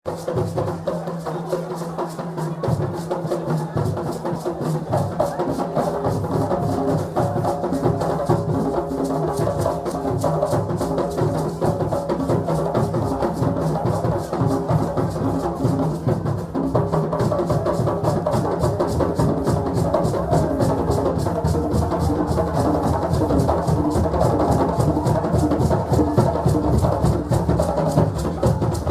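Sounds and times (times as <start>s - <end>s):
drums playing dance rhythm: 2.6s - 28.9s.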